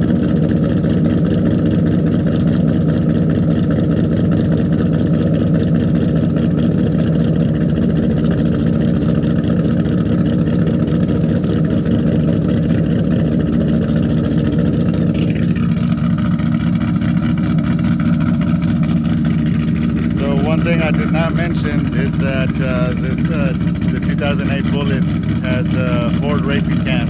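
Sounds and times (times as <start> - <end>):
car engine idling choppily: 0.0 - 27.0.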